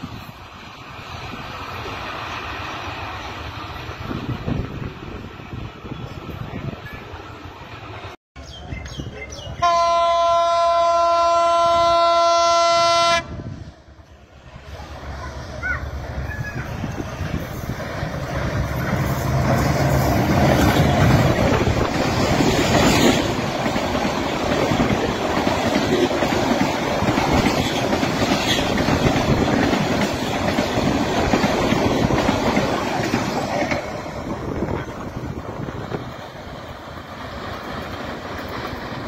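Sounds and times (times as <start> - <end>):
diesel locomotive engine: 0.0 - 39.0
train coaches clattering on rails: 14.6 - 39.0.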